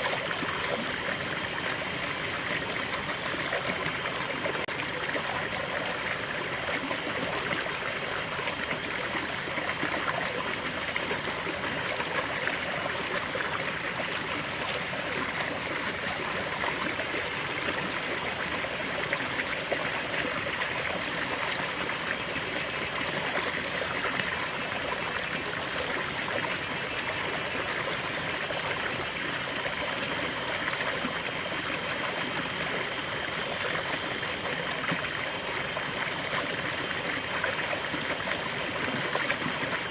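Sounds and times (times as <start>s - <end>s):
stream splashing over cascade: 0.0s - 39.9s.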